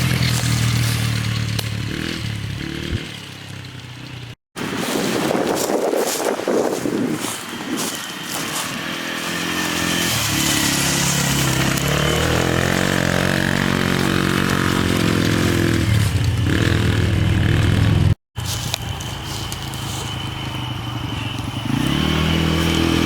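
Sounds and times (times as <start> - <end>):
quad engine running under throttle: 0.0 - 4.4, 5.4 - 23.0.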